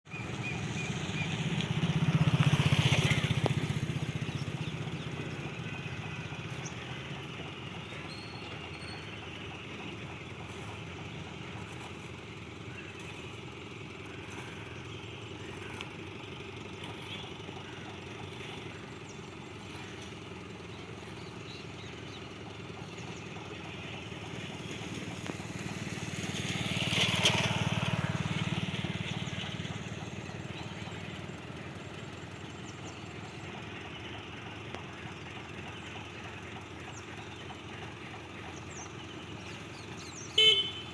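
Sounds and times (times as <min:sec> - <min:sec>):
engine running with low hum: 0:00.0 - 0:40.9
vehicle passing loudly: 0:00.2 - 0:07.8, 0:13.9 - 0:32.5.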